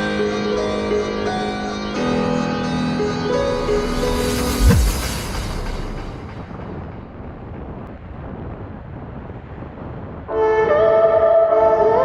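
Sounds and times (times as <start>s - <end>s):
music with held chords: 0.0s - 7.7s
wind noise on microphone: 3.4s - 12.0s.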